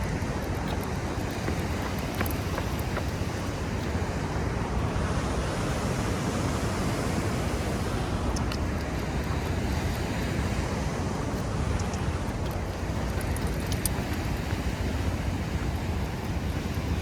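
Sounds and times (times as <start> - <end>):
faint ticks: 0.0 - 4.0, 8.3 - 10.6, 11.3 - 17.0
sea surf: 0.0 - 17.0
wind buffeting microphone: 0.0 - 17.0.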